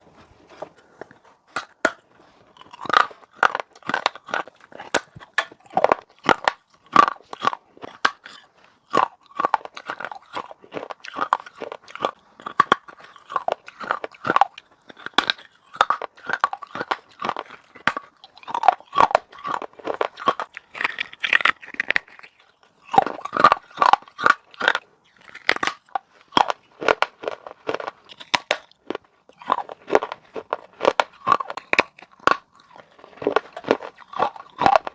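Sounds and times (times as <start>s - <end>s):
person crunching clay: 0.1s - 34.9s.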